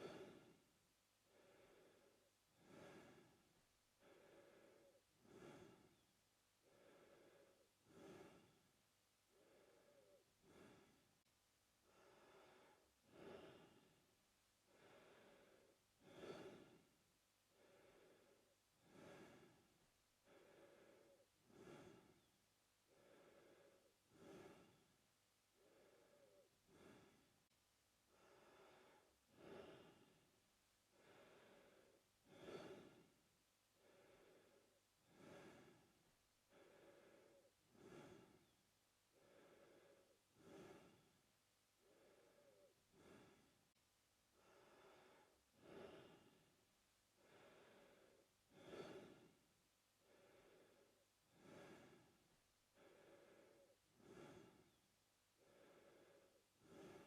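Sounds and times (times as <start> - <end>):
man breathing through mouth: 1.3 - 3.4, 4.0 - 6.0, 6.6 - 8.6, 14.7 - 16.9, 20.2 - 22.3, 22.9 - 25.0, 25.6 - 27.3, 30.9 - 33.2, 33.8 - 41.2, 41.8 - 43.6, 47.2 - 49.4, 50.0 - 54.8, 55.4 - 57.0.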